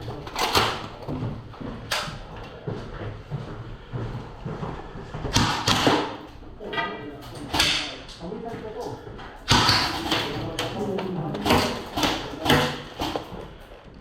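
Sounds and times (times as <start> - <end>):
sharp knocks with echo: 5.2 - 6.3, 7.5 - 8.1, 9.4 - 13.5.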